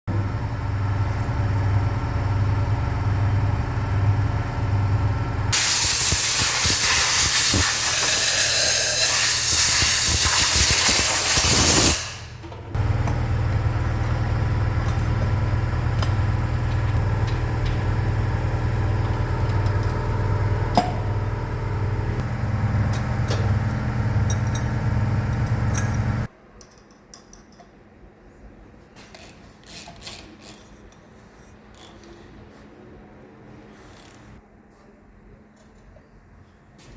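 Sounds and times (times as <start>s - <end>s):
machine hum with pulsing drone: 0.1s - 5.6s, 11.6s - 26.3s
loud hissing spray: 5.6s - 12.2s.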